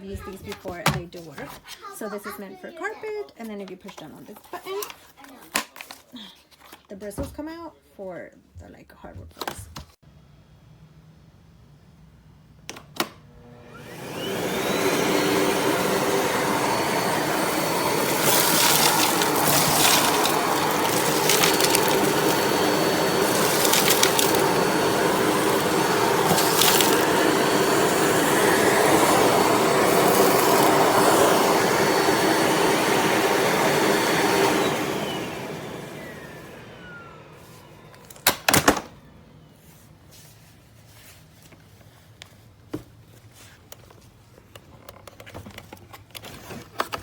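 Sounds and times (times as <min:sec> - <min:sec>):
vacuum motor whining: 0:13.3 - 0:39.5.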